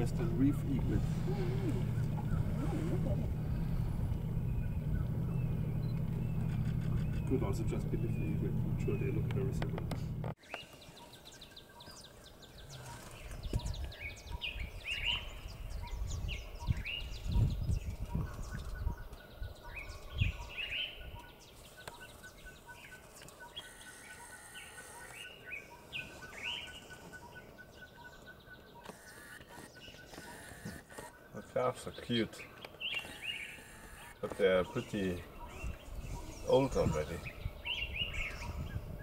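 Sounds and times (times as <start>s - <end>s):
birds upward-sweeping calls: 0.0s - 9.2s, 10.4s - 39.0s
low rumble: 0.0s - 10.3s.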